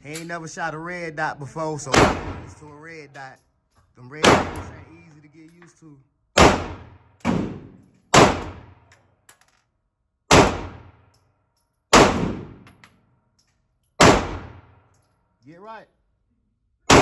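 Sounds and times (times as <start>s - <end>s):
pistol shots echoing: 1.9s - 2.7s, 4.2s - 5.1s, 6.4s - 8.9s, 10.3s - 11.0s, 11.9s - 12.6s, 14.0s - 14.8s.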